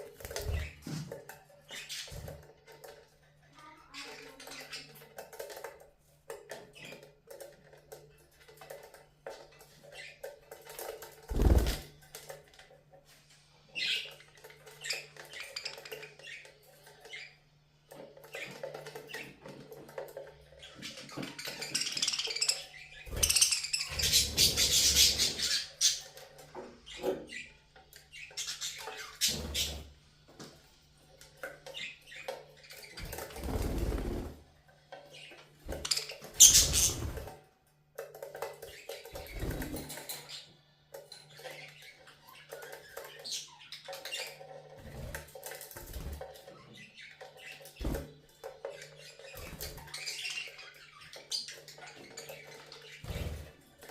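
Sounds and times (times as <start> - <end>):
budgerigars chirping and chattering: 0.0 - 3.0, 3.6 - 5.7, 13.7 - 17.4, 18.1 - 29.9, 35.0 - 37.3, 41.2 - 53.9.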